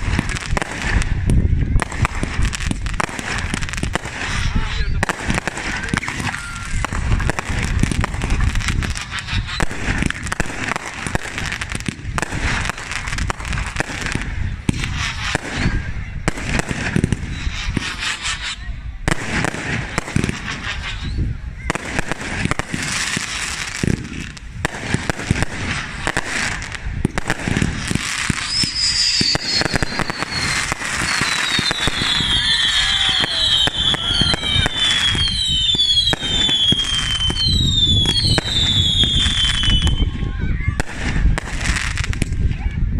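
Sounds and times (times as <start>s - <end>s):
fireworks bangs and crackling: 0.0s - 42.9s
high falling whistles: 6.0s - 6.9s, 28.4s - 40.2s.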